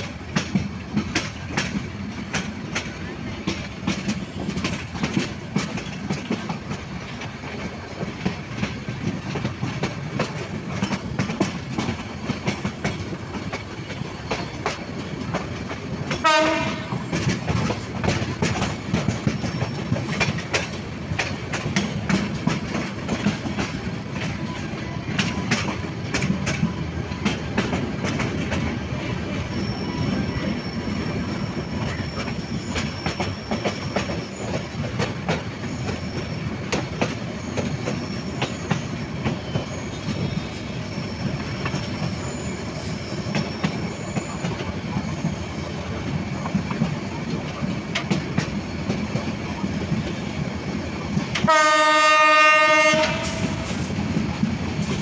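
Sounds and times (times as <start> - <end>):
train rumbling: 0.0 - 55.0
wheels clacking over rail joints: 0.0 - 55.0
train horn: 16.1 - 17.2, 51.4 - 53.9.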